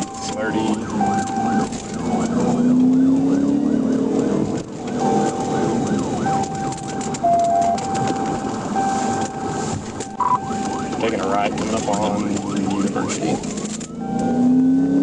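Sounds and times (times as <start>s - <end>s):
police siren yelping: 0.0s - 15.0s
engine rising in pitch: 0.4s - 8.1s, 13.7s - 15.0s.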